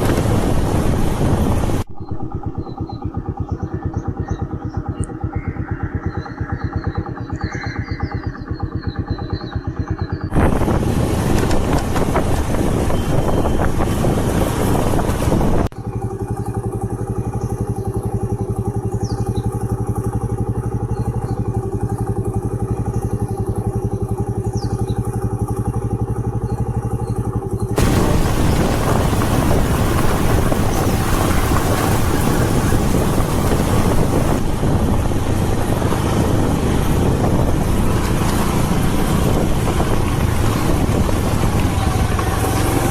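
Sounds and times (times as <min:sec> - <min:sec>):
wind buffeting microphone: 0:00.0 - 0:04.4, 0:10.3 - 0:15.8, 0:27.7 - 0:42.9
vehicle engine running: 0:00.0 - 0:42.9.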